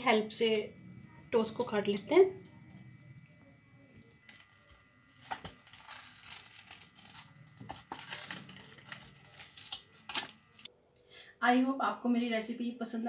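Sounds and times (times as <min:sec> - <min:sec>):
toast crust crunching: 0:02.4 - 0:10.7.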